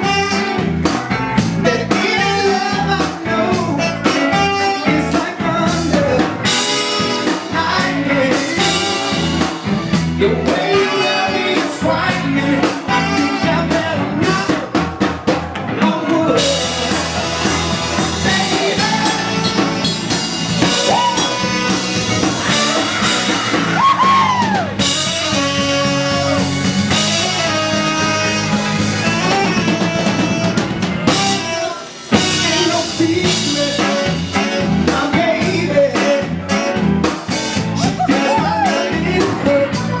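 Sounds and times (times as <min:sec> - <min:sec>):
blues band playing: 0:00.0 - 0:40.0
woman singing: 0:38.0 - 0:40.0.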